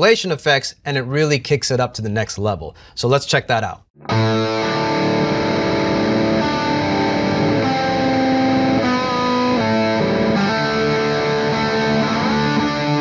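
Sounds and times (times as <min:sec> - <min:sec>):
electric guitar with delay: 0:04.0 - 0:13.0.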